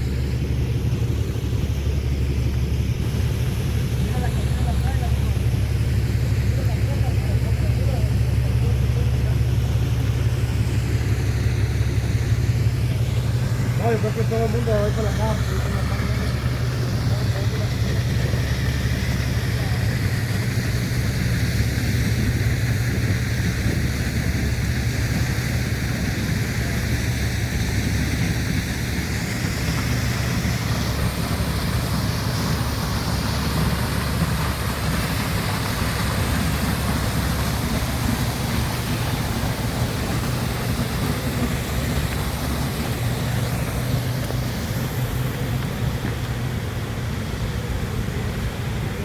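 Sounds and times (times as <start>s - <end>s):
vehicle engine idling: 0.0s - 49.0s
wind noise: 15.4s - 49.0s.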